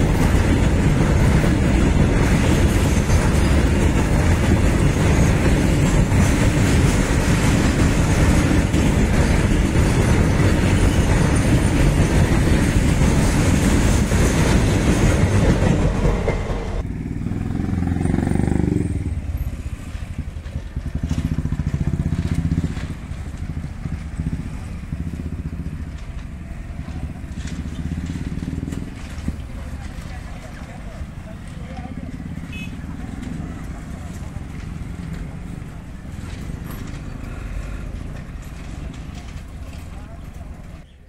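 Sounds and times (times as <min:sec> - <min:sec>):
freight train rumbling on rails: 0:00.0 - 0:41.0
motorcycle engines running: 0:16.8 - 0:40.4.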